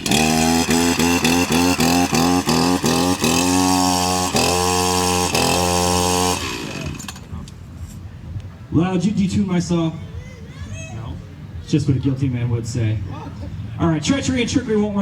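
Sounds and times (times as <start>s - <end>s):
chainsaw pull-start: 0.0s - 7.3s
chainsaw running roughly: 0.0s - 7.3s.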